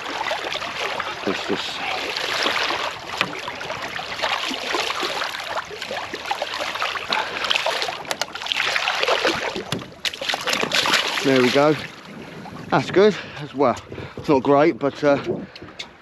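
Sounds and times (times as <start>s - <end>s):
water splashing around boat: 0.0s - 16.0s
sharp knocks and clicks: 8.1s - 8.4s, 9.6s - 11.0s.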